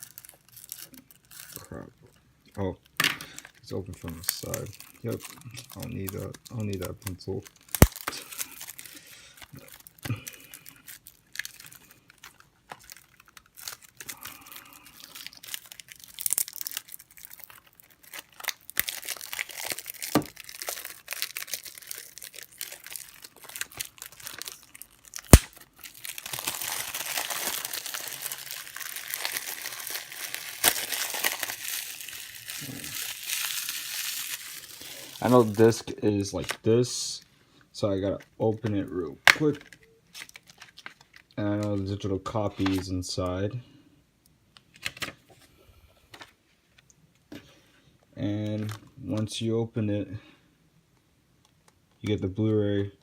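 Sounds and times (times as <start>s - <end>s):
shrink-wrap tearing: 0.0s - 1.8s, 3.2s - 35.8s, 39.3s - 41.9s
plastic crinkling: 0.0s - 36.7s, 38.9s - 42.0s.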